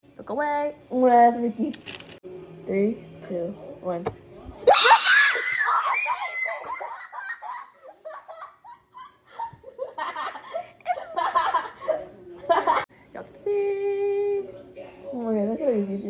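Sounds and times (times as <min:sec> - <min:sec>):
woman shrieking and laughing: 0:04.7 - 0:07.3.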